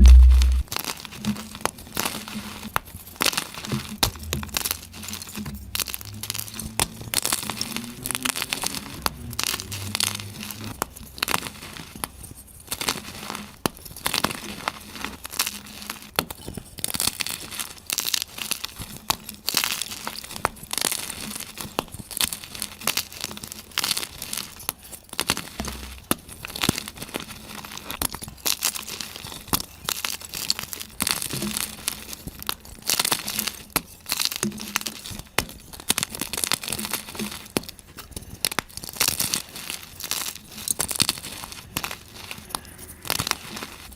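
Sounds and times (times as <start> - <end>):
chalk being crushed: 0.0 - 43.9.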